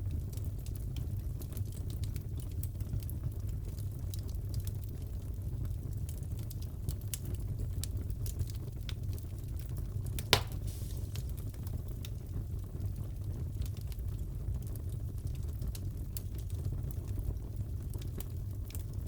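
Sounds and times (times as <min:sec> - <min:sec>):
wood fire crackling: 0:00.0 - 0:19.0
loud pop from fire: 0:10.2 - 0:11.7.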